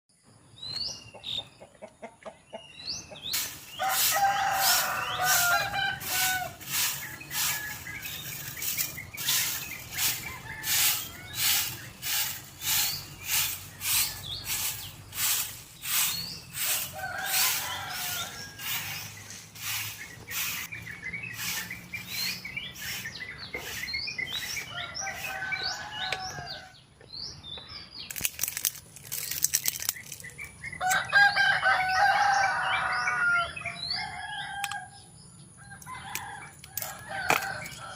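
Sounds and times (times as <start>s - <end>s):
small birds chirping: 0.2s - 37.9s
chickens clucking: 0.8s - 26.7s.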